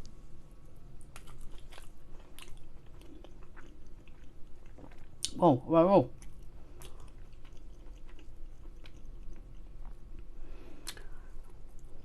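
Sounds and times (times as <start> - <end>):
close chewing with wet clicks: 1.0 - 5.4, 6.1 - 11.1.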